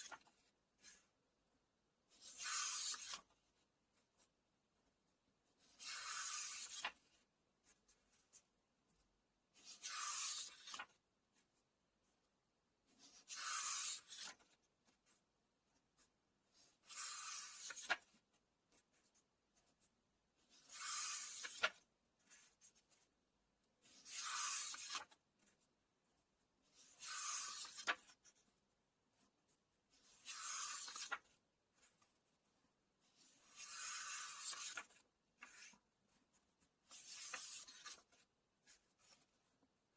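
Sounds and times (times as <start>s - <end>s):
book pages turning: 0.0s - 1.1s, 2.1s - 4.3s, 5.6s - 9.0s, 9.6s - 11.0s, 12.9s - 15.2s, 16.0s - 19.9s, 20.5s - 23.1s, 23.8s - 25.7s, 26.7s - 28.5s, 29.2s - 32.4s, 33.0s - 39.6s.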